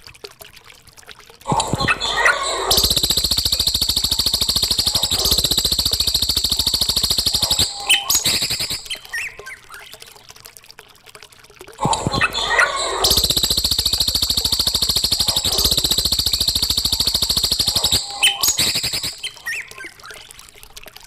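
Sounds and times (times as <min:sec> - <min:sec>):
short bird notes: 0:01.5 - 0:09.2, 0:12.0 - 0:20.2
songbird buzzy trill: 0:01.5 - 0:09.4, 0:11.9 - 0:20.3.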